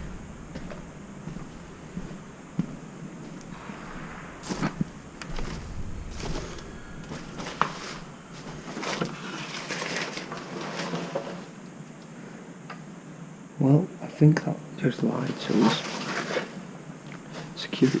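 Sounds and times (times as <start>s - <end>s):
scraping rustles: 0.0s - 11.6s, 15.4s - 16.6s.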